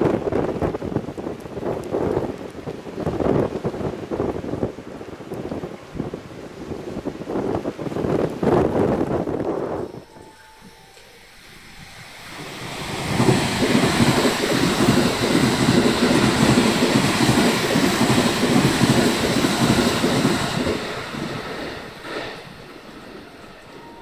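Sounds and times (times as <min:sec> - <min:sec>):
train passing: 0:08.0 - 0:24.0.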